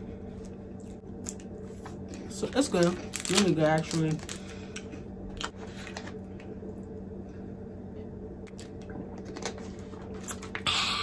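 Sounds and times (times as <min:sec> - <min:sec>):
wrapper rustle: 0:02.1 - 0:04.6.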